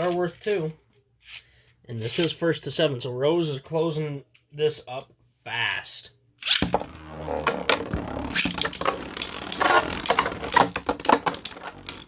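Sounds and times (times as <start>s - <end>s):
spinning tops rattling: 6.4s - 12.0s
spinning tops colliding clicks: 8.2s - 12.0s.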